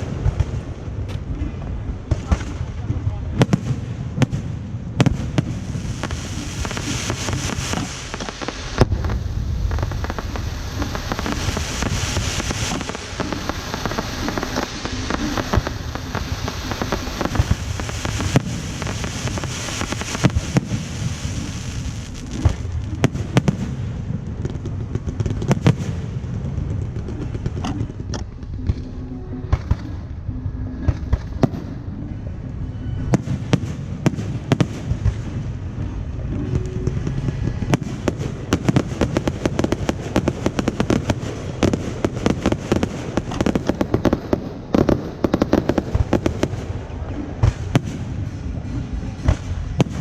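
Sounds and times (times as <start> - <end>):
fireworks loud sharp bangs: 0.0 - 28.9, 33.0 - 50.0
fireworks crackling and popping: 0.0 - 30.2, 30.8 - 50.0.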